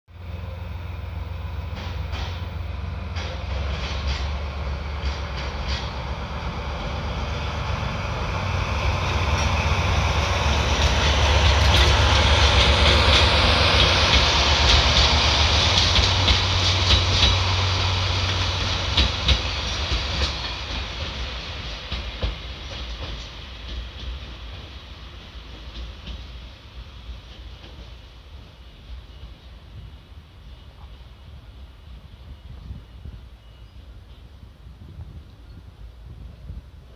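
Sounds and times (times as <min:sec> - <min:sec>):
diesel locomotive rumble: 0:00.1 - 0:28.6
wheels clacking over rail joints: 0:01.6 - 0:26.4.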